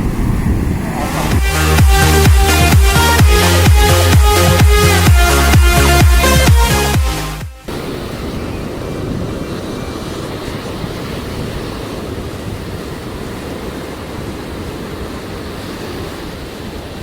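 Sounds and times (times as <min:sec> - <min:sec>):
wind buffeting microphone: 0:00.0 - 0:01.5, 0:07.7 - 0:17.0
surf washing: 0:00.0 - 0:17.0.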